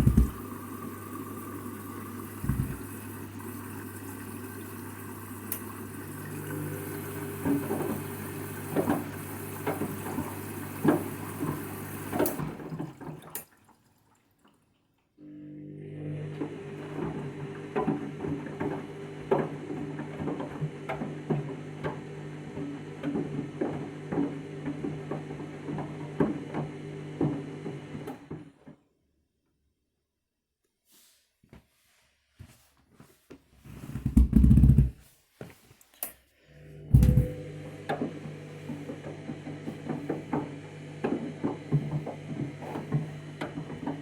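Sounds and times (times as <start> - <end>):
mat knocking in drum: 0.0 - 0.4, 34.0 - 35.0
water running into drum: 0.0 - 14.9, 16.4 - 27.9, 36.7 - 44.0
washing machine hum: 0.0 - 28.8, 32.4 - 35.6, 36.3 - 44.0.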